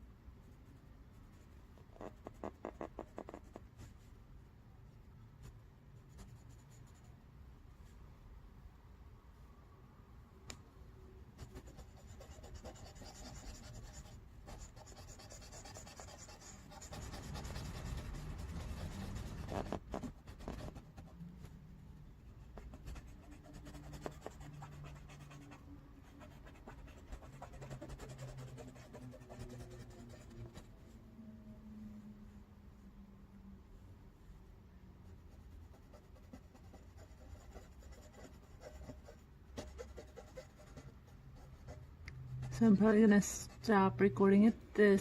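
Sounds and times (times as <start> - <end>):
pen scratching on paper: 1.8 - 3.7, 11.4 - 21.1, 22.6 - 30.6, 35.3 - 41.8.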